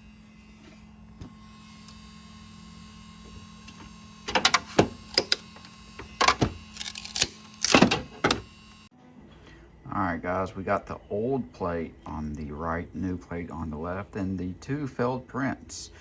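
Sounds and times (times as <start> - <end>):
steady low hum: 0.0 - 16.0
plastic print cracking and snapping: 3.7 - 8.4.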